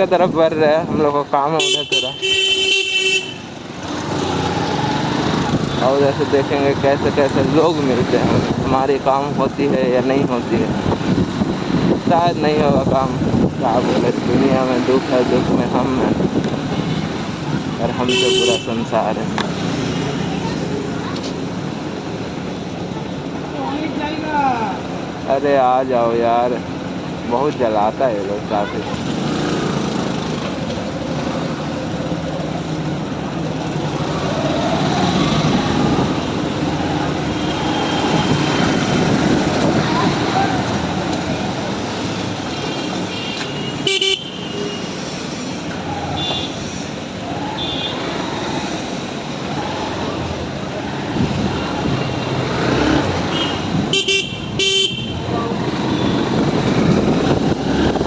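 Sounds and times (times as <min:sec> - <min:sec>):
wind and road noise: 0:00.0 - 0:58.0
vehicle horn toots: 0:01.6 - 0:03.5, 0:18.0 - 0:18.8, 0:42.7 - 0:44.9, 0:46.2 - 0:46.7, 0:47.6 - 0:48.1, 0:53.3 - 0:56.4.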